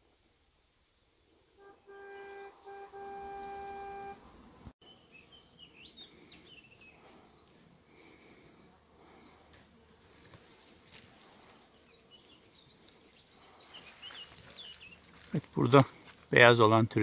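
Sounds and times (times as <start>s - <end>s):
faint outdoor hiss: 0.0s - 17.0s
vehicle horn toot: 1.6s - 4.3s
birds chirping: 1.6s - 17.0s.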